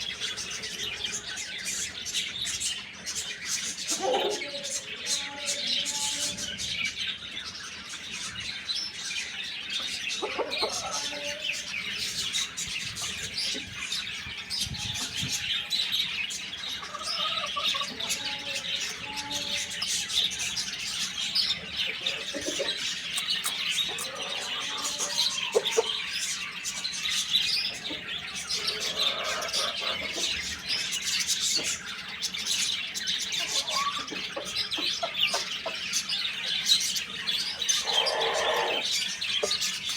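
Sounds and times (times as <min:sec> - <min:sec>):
small birds chirping: 0:00.0 - 0:39.9
larger bird calls: 0:37.5 - 0:39.5.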